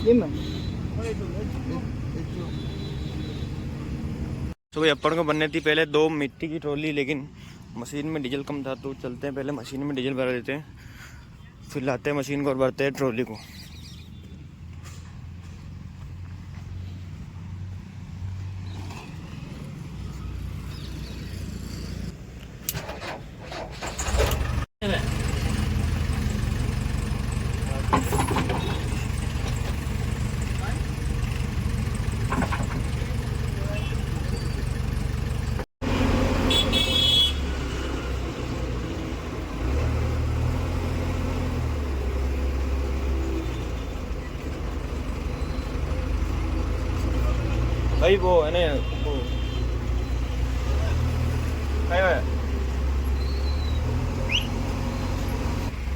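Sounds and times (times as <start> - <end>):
diesel engine running: 23.8 - 37.3, 38.6 - 55.9
diesel engine running at low speed: 24.0 - 37.3.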